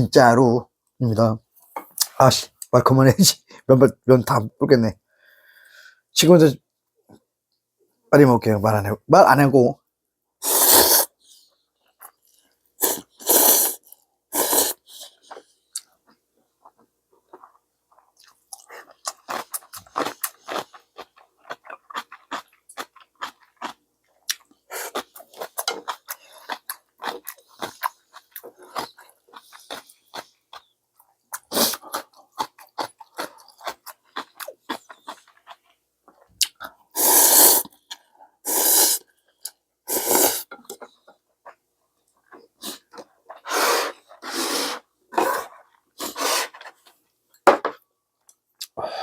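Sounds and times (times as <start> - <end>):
person slurping noodles: 10.4 - 11.2, 12.8 - 15.0, 36.9 - 37.8, 38.4 - 39.0, 39.9 - 40.5, 42.6 - 46.7.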